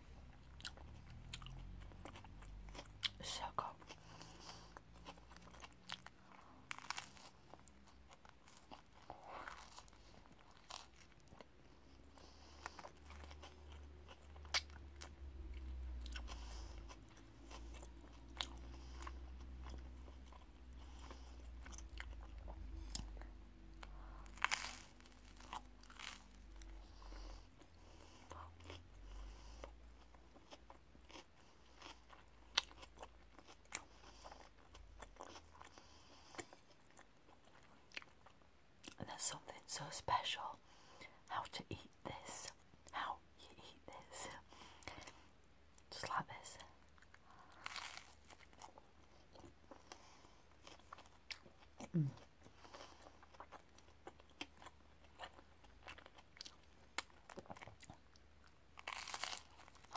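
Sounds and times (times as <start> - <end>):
crunching bites of sandwich: 3.9 - 11.5, 12.6 - 26.8, 46.9 - 59.9.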